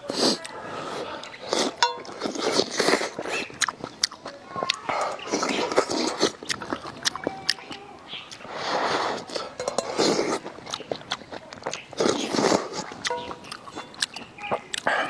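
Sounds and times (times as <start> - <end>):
person biting and chewing: 0.0 - 15.0.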